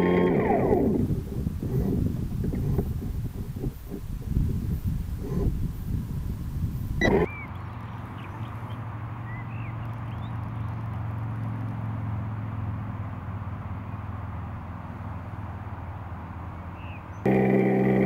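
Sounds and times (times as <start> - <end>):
steady low rumble: 0.0 - 10.6
short bird chirps: 7.0 - 10.3.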